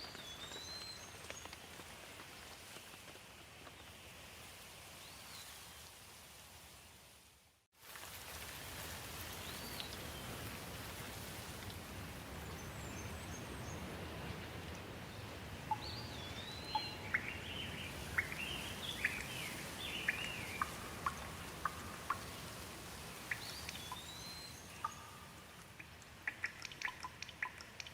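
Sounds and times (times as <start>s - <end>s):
background hiss: 0.0s - 27.9s.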